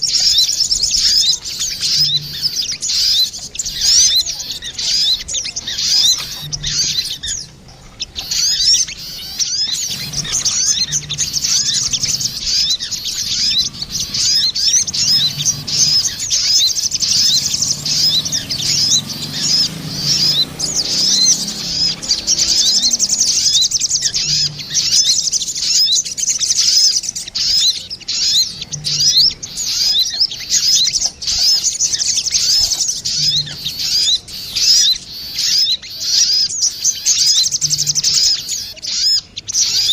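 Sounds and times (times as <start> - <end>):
birds calling quick high chirps: 0.0 - 39.9.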